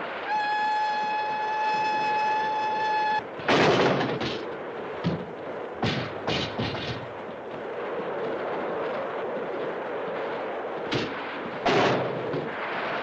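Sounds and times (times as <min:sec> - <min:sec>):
steady rushing noise: 0:00.0 - 0:13.0
steam locomotive whistle: 0:00.2 - 0:03.2.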